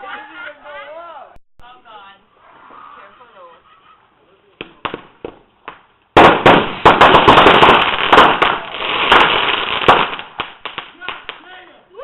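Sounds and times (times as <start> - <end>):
firecrackers banging: 4.6 - 11.6.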